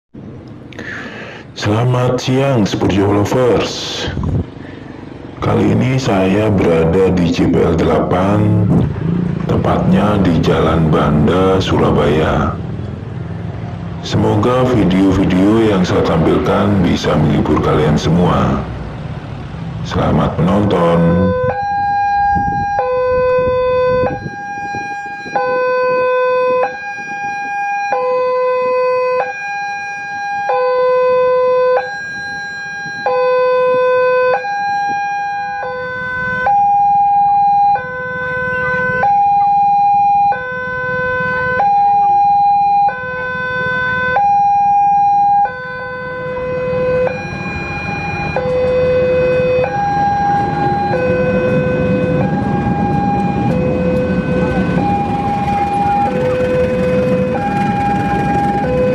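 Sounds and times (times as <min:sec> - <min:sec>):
low rumble: 0:06.4 - 0:20.7, 0:46.9 - 0:58.9
level crossing two-tone alarm: 0:20.4 - 0:58.9.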